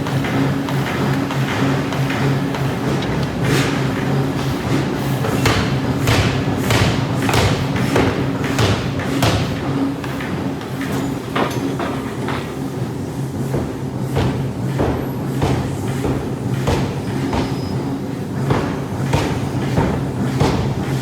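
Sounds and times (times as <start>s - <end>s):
steady machine hum: 0.0s - 21.0s.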